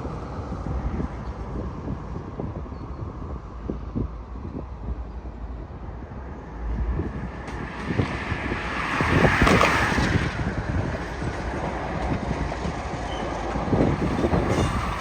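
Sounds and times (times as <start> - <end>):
train rushing noise: 0.0 - 15.0
train wheels knocking over rail joints: 11.1 - 15.0.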